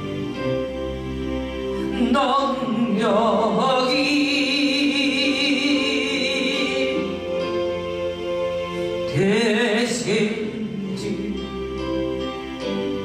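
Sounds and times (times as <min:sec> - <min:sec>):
instrumental accompaniment: 0:00.0 - 0:13.0
person singing worship song: 0:01.8 - 0:07.4.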